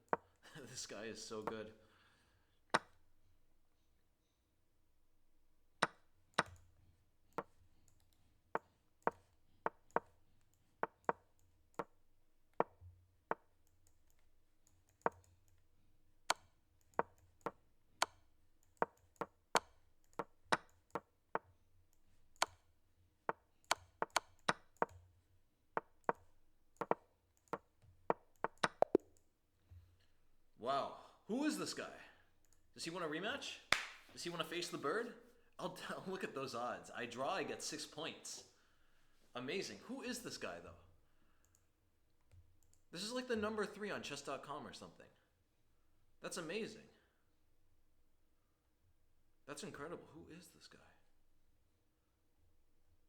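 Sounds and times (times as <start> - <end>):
wooden chess move knocks: 28.1 - 29.0.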